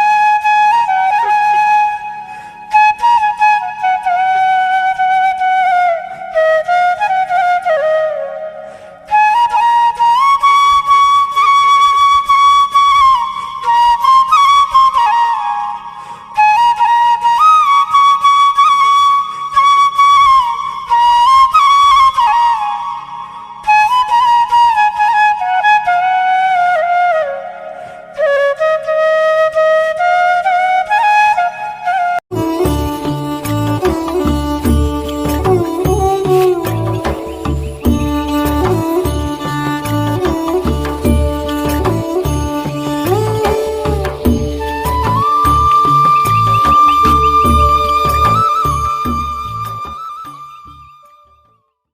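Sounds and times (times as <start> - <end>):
solo flute melody: 0.0 - 51.7.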